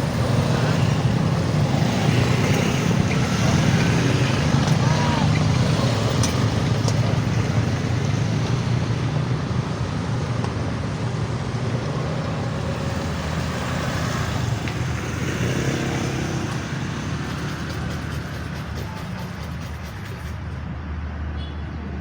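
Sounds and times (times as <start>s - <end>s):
heavy vehicle passing rumble: 0.0s - 22.0s.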